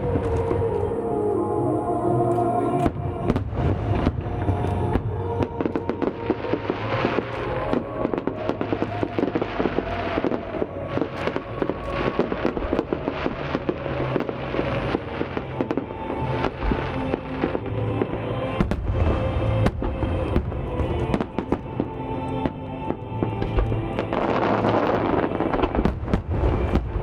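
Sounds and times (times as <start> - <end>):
fireworks bangs and crackles: 0.0 - 0.9, 2.3 - 27.0
music playing: 0.0 - 27.0.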